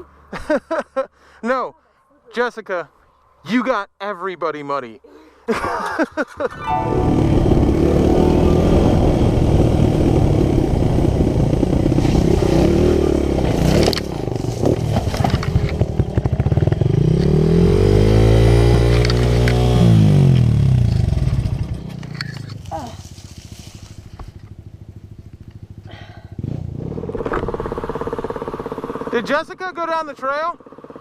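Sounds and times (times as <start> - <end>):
dirt bike engine running: 6.8 - 29.4, 30.2 - 31.0.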